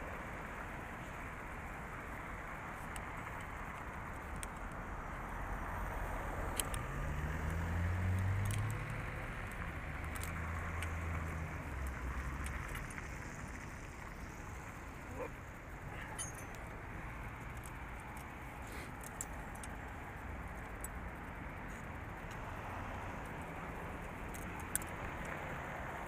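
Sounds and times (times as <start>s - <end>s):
vehicle engine hum: 0.0s - 26.0s
light metallic clinks: 9.4s - 22.4s, 23.2s - 25.4s.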